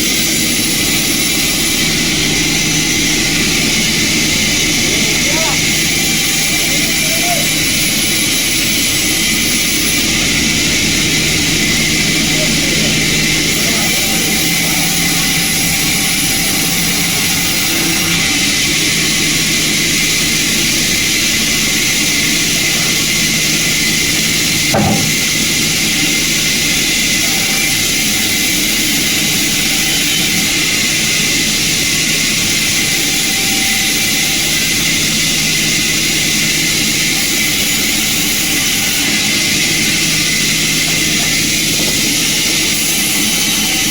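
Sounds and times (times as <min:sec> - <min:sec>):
sawmill machinery running: 0:00.0 - 0:43.9
sharp mechanical knock: 0:24.7 - 0:25.4.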